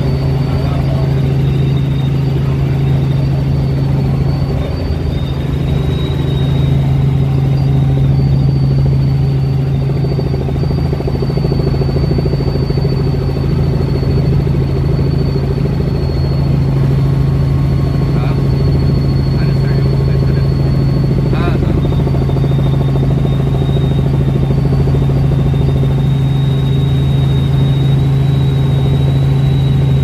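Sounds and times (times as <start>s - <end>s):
helicopter engine and rotor drone: 0.0s - 30.0s
thin high whine: 0.0s - 30.0s.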